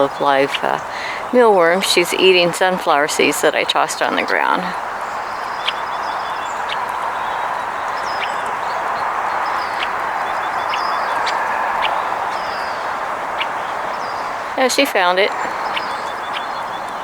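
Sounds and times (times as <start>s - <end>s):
small birds chirping: 0.0s - 17.0s
steady rushing noise: 0.0s - 17.0s.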